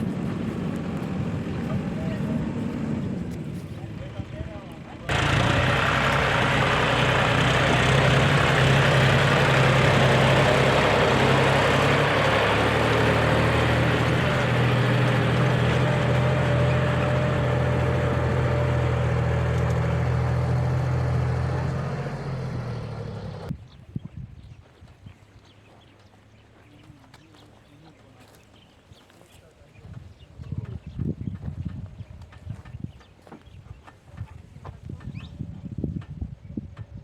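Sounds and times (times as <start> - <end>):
heavy diesel engine running: 0.0 - 23.5.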